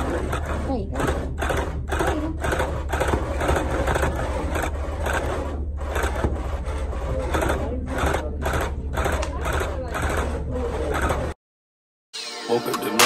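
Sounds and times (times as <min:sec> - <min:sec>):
steady low hum: 0:00.0 - 0:11.4
tufting gun chattering: 0:07.2 - 0:11.3.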